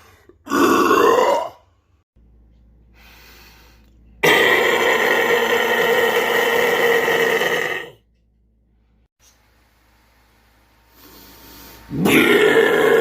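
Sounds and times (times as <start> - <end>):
distorted vocal scream: 4.2 - 8.0, 11.9 - 13.0.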